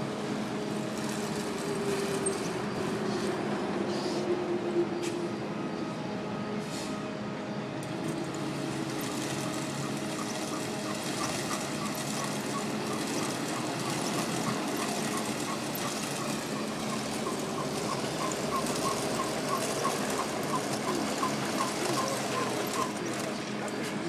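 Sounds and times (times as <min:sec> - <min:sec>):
road repair machinery running: 0:00.0 - 0:24.0.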